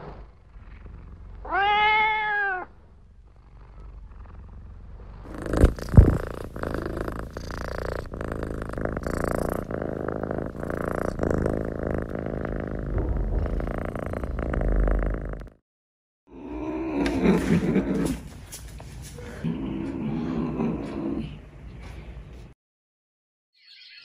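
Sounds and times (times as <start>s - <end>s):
cat purring: 0.0s - 1.5s, 2.8s - 15.6s.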